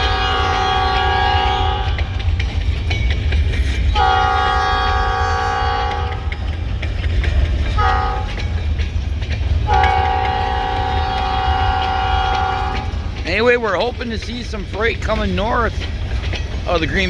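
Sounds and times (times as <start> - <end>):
locomotive air horn blasts: 0.0 - 2.1, 4.0 - 6.2, 7.8 - 8.3, 9.7 - 12.9
low train rumble: 0.0 - 17.0.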